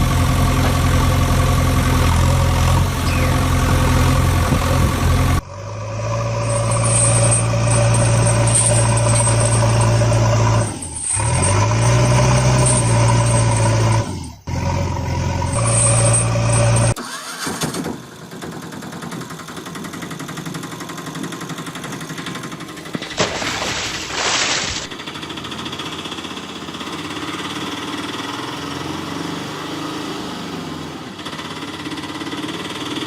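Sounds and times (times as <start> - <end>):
vehicle engine idling: 0.0 - 11.0
different engine drone: 0.0 - 17.0.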